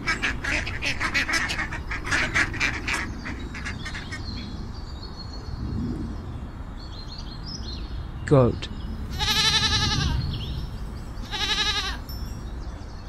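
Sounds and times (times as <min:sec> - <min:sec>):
duck quacking: 0:00.0 - 0:04.2.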